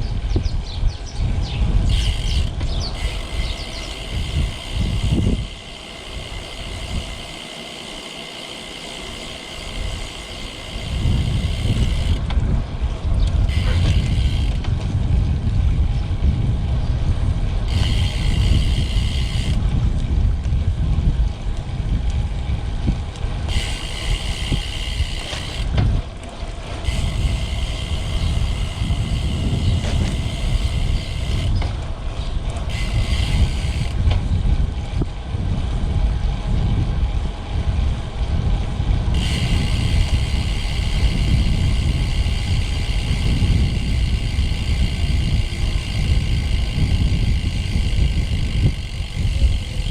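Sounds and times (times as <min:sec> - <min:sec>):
wind rumbling on microphone: 0:00.0 - 0:49.9
high hissing whir: 0:01.8 - 0:12.3, 0:13.2 - 0:14.8, 0:17.6 - 0:19.6, 0:23.4 - 0:25.8, 0:26.6 - 0:34.2, 0:39.1 - 0:49.9.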